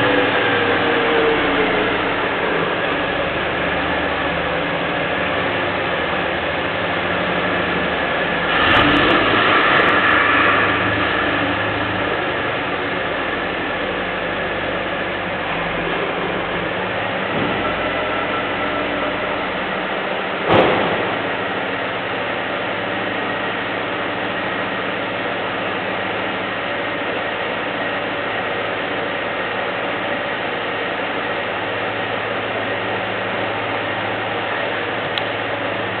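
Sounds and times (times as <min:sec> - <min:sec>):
car exhaust idling: 0:00.0 - 0:36.0
sharp thump: 0:20.4 - 0:21.3.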